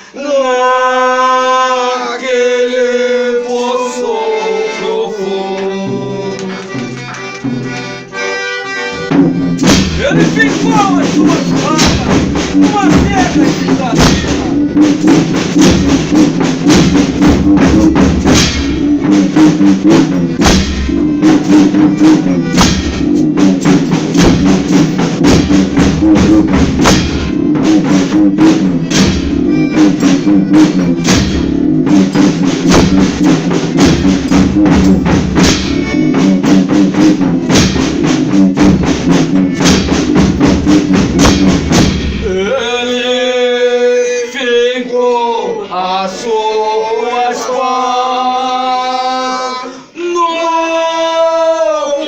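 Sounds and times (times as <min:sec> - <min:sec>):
man singing: 0:00.0 - 0:06.8, 0:10.0 - 0:14.7, 0:42.2 - 0:52.0
sustained instrument chords: 0:04.3 - 0:42.5
drum beat: 0:05.8 - 0:42.8.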